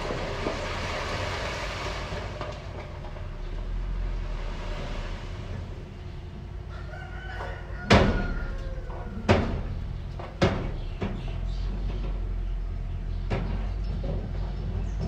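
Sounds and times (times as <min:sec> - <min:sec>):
heavy machinery engine running: 0:00.0 - 0:15.0
loud metal bangs: 0:07.6 - 0:14.9.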